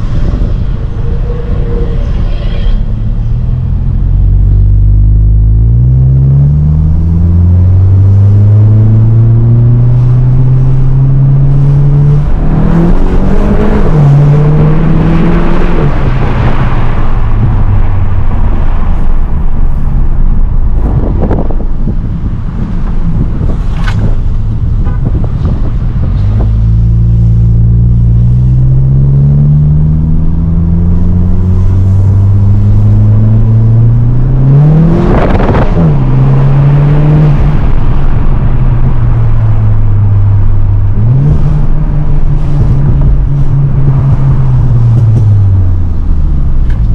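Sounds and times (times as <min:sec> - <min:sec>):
car engine accelerating hard: 0:00.0 - 0:46.9
exhaust crack at upshift: 0:02.8 - 0:46.9.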